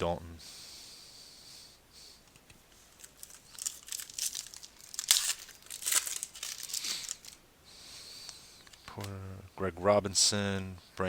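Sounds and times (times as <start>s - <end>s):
plastic wrapper crinkling and tearing: 2.9s - 7.4s.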